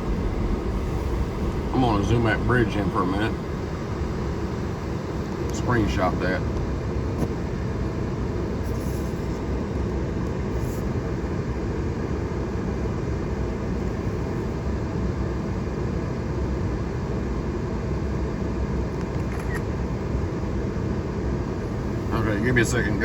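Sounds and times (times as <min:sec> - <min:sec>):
vehicle engine rumble inside cab: 0:00.0 - 0:23.0.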